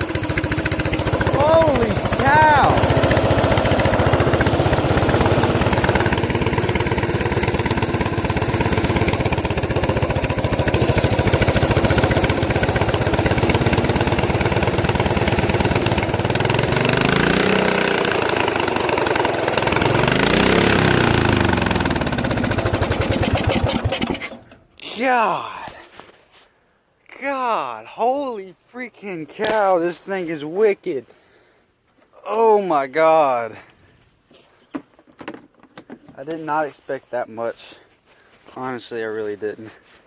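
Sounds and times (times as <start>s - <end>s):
lawnmower engine running: 0.0s - 24.6s.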